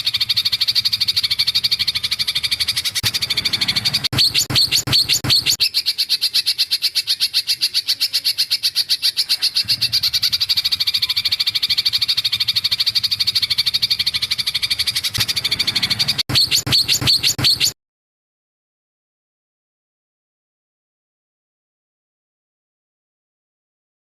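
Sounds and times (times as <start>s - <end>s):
songbird trilling: 0.0s - 17.8s.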